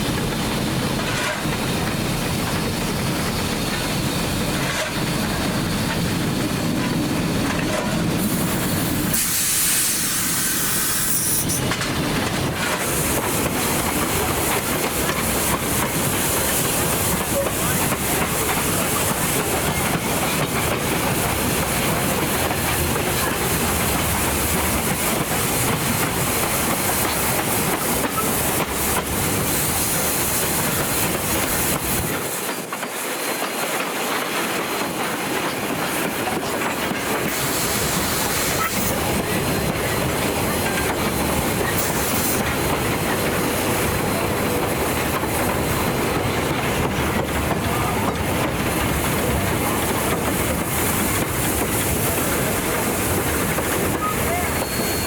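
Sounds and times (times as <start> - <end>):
rail clatter: 0.0 - 55.0
steam locomotive hiss: 0.0 - 55.0
train rumble: 0.0 - 55.0.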